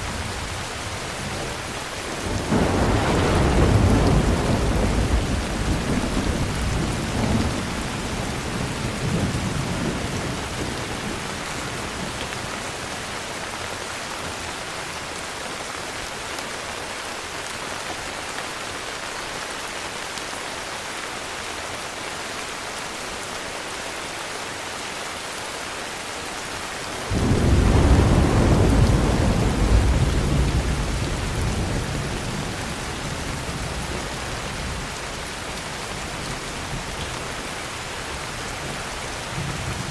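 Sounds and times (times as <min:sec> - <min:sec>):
thunder rumbling: 0:00.0 - 0:12.6, 0:27.0 - 0:39.9
heavy rain: 0:00.0 - 0:39.9.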